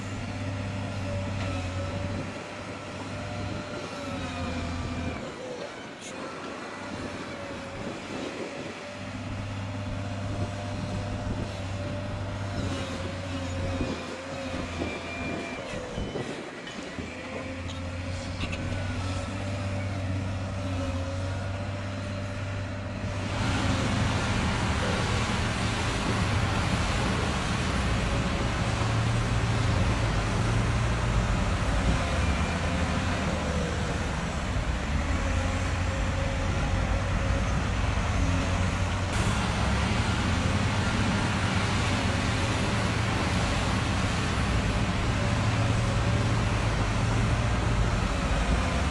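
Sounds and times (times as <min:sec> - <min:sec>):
truck engine running: 0:21.6 - 0:48.9.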